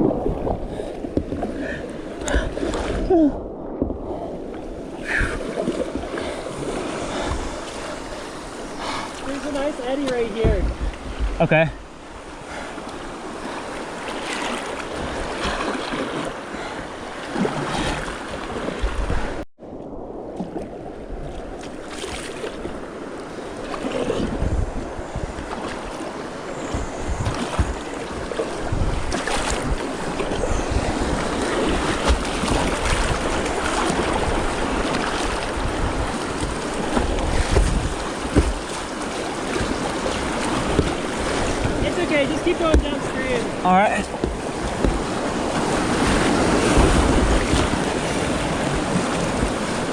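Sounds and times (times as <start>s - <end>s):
wind buffeting microphone: 0.0s - 16.7s, 22.6s - 49.9s
paddle splashes: 0.0s - 49.9s
rushing whitewater: 22.0s - 49.9s.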